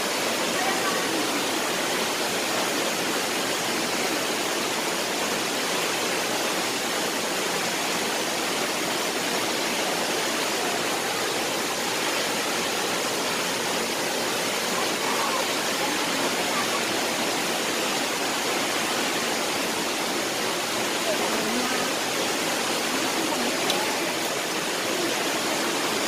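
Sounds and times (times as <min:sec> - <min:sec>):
large waterfall rushing: 0:00.0 - 0:26.0.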